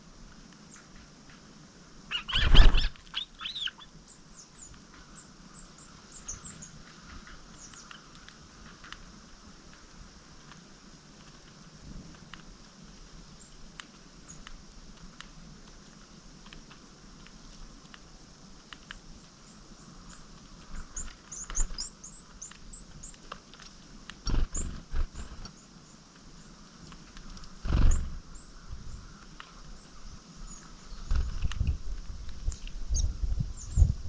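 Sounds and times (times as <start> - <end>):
songbirds calling: 0.0 - 10.8, 12.4 - 34.0
light ticks: 4.4 - 24.2, 29.2 - 29.9.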